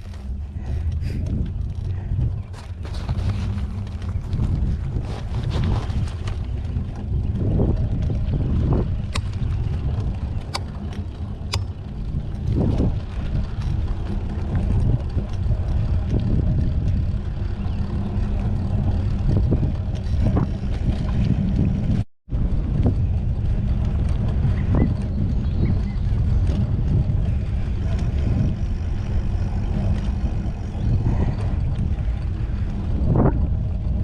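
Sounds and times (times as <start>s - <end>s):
bike clicks: 0.0s - 34.0s
wind buffeting microphone: 0.0s - 34.0s.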